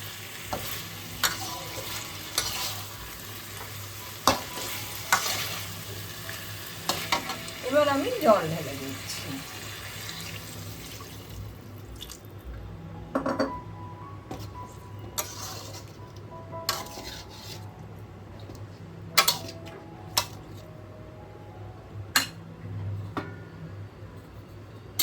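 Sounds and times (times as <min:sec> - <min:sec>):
metal utensil clinking on pan: 0:04.2 - 0:05.5, 0:19.2 - 0:19.6.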